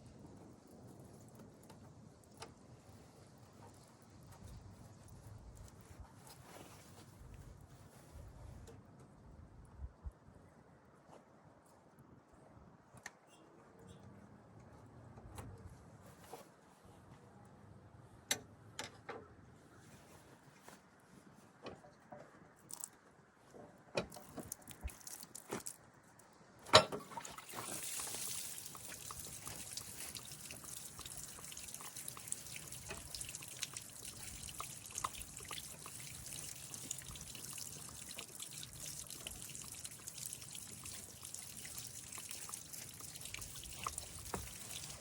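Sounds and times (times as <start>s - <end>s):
coolant trickling and splashing: 24.0s - 45.0s.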